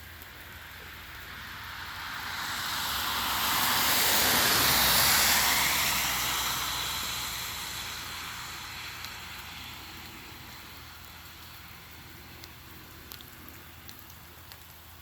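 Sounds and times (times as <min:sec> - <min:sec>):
vehicle passing by: 0:01.1 - 0:13.9.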